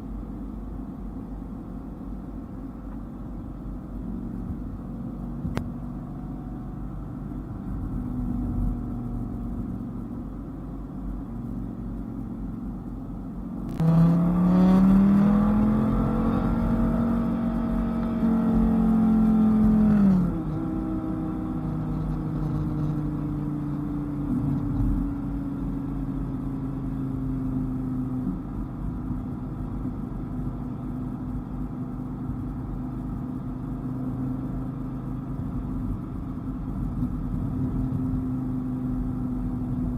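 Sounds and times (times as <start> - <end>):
car engine accelerating: 13.6 - 39.9.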